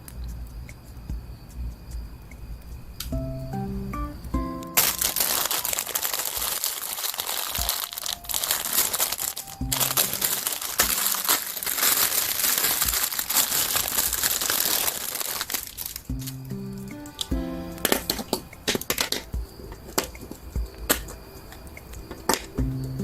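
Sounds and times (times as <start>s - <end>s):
plastic packaging crinkling: 4.7s - 16.4s.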